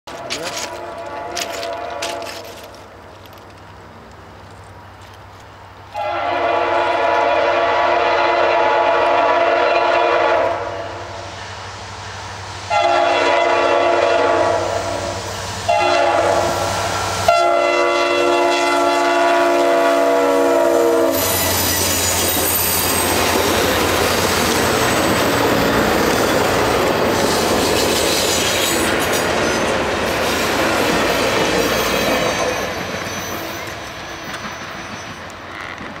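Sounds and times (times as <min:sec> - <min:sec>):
locomotive horn blasts: 0:00.1 - 0:02.6, 0:05.9 - 0:11.0, 0:12.7 - 0:15.1, 0:15.7 - 0:16.7, 0:17.3 - 0:21.7
train wheels clattering on rails: 0:21.1 - 0:36.0.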